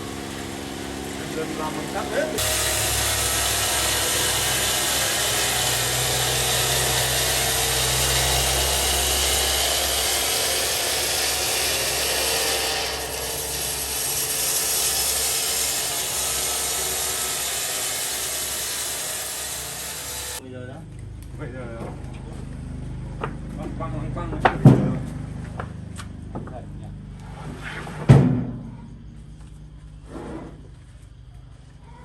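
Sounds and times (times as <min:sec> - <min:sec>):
power saw cutting wood: 0:00.0 - 0:20.4
low motor hum: 0:00.0 - 0:27.6.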